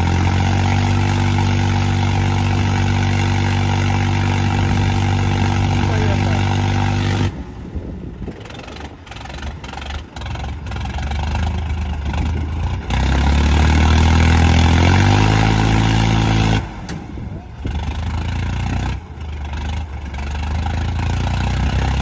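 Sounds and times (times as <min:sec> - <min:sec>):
diesel tractor engines labouring: 0:00.0 - 0:22.0.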